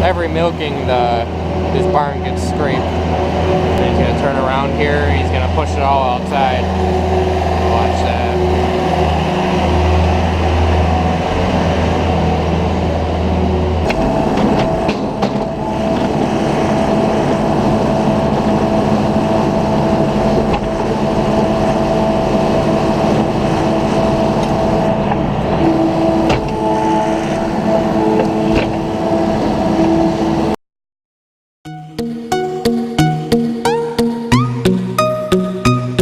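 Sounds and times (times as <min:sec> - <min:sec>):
farm vehicle engine running: 0:00.0 - 0:30.6
steady whine: 0:00.0 - 0:30.6
sharp knocks: 0:13.9 - 0:16.3.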